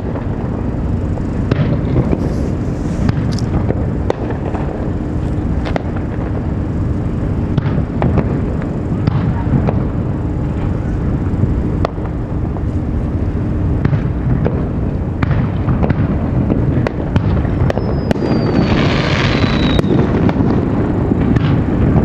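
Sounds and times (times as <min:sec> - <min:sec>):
firework bangs: 0:00.0 - 0:22.0
firework crackle hiss: 0:00.0 - 0:22.0
low rumble: 0:00.0 - 0:22.0
falling firework whistle: 0:16.8 - 0:22.0.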